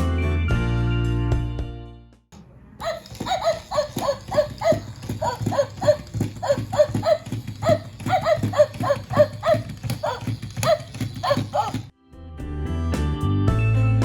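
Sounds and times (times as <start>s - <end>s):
clip-clop of trotting hooves: 2.8s - 11.9s
background music: 12.0s - 14.0s.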